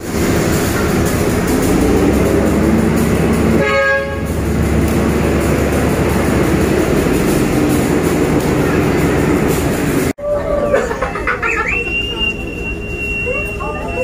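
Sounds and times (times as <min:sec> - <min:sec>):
locomotive running: 0:00.0 - 0:14.0
train horn toot: 0:03.5 - 0:04.5.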